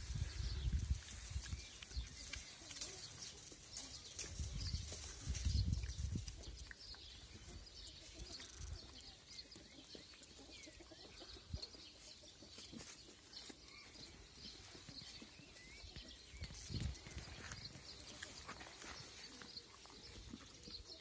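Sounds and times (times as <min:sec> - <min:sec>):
microphone wind rumble: 0:00.0 - 0:01.6, 0:04.4 - 0:06.4
small birds chirping: 0:00.0 - 0:21.0.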